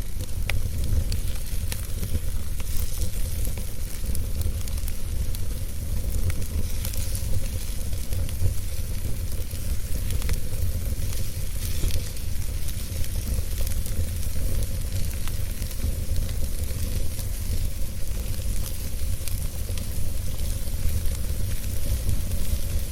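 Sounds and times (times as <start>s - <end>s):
fire crackles and pops: 0.0s - 22.9s
wood fire rumbling and sizzling: 0.0s - 22.9s.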